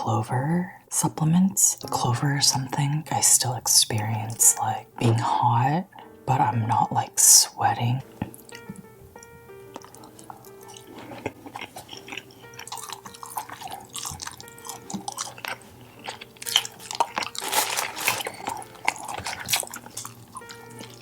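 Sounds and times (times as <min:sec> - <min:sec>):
soft background music: 0:00.0 - 0:21.0
close-miked chewing and crunching: 0:08.1 - 0:21.0.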